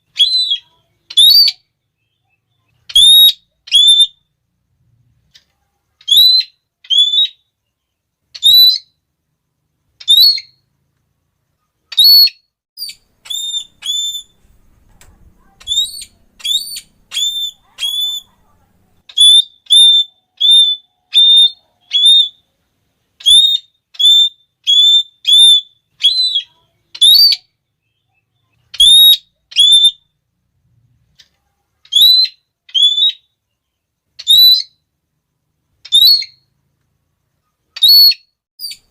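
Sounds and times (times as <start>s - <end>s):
parrot shrill calls: 0.1s - 1.7s, 2.9s - 4.2s, 6.0s - 7.4s, 8.4s - 9.0s, 10.0s - 10.6s, 11.9s - 14.4s, 15.4s - 18.3s, 19.1s - 22.4s, 23.2s - 27.5s, 28.7s - 30.1s, 31.9s - 33.3s, 34.2s - 34.8s, 35.8s - 36.5s, 37.8s - 38.9s.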